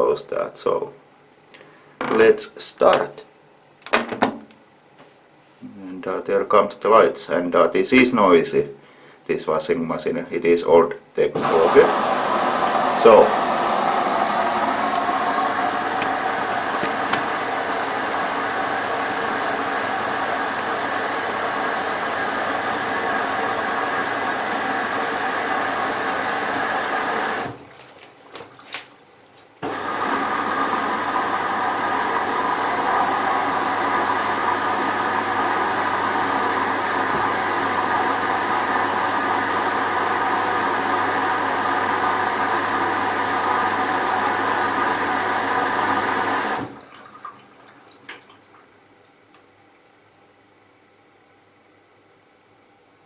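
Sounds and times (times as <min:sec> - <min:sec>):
washing machine filling with water: 0:11.4 - 0:50.4.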